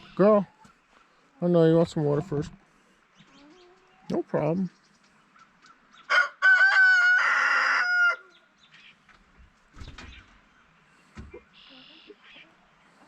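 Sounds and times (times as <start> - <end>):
rooster crowing: 6.1 - 8.4.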